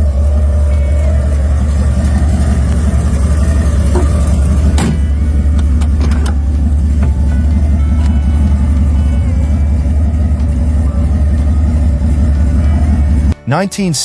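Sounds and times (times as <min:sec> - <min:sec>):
car engine rumbling: 0:00.0 - 0:13.4
sharp knocks: 0:03.9 - 0:06.4.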